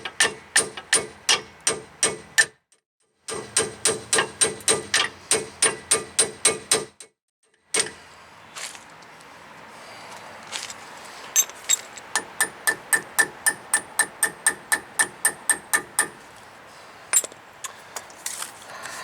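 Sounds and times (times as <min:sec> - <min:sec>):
hammer tapping on metal: 0:12.2 - 0:16.2.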